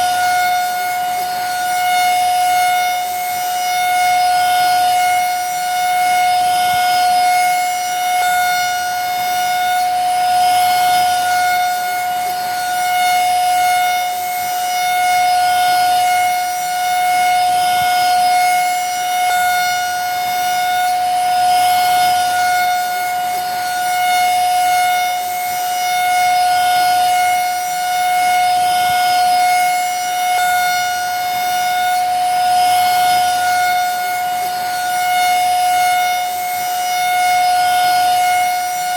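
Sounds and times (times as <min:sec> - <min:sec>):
vacuum cleaner running: 0:00.0 - 0:02.3.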